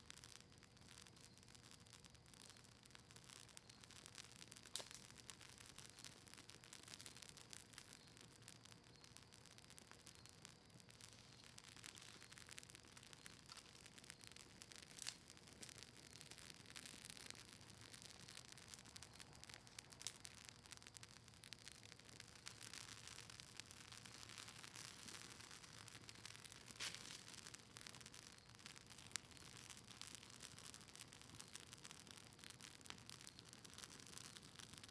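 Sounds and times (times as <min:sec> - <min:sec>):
campfire crackling: 0:00.0 - 0:34.9
fire popping: 0:00.0 - 0:34.9.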